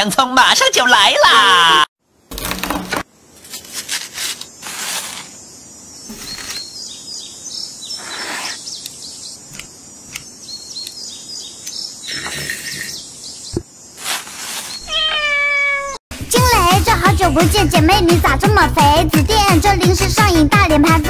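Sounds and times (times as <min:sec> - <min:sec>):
food scraping and crunching: 0:02.3 - 0:05.4, 0:06.1 - 0:06.7, 0:14.0 - 0:14.9
small birds chirping: 0:04.5 - 0:15.4.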